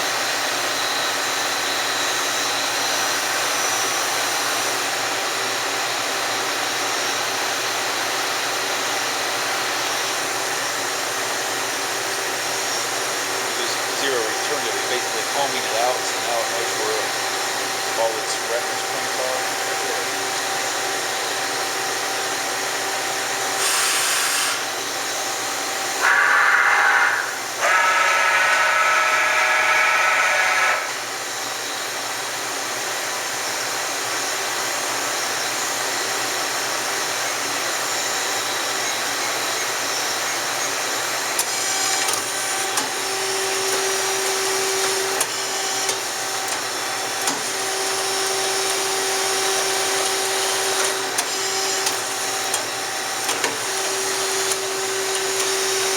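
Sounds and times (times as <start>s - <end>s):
motor whine bursts: 12.1s - 31.6s
machine hum: 25.0s - 31.6s.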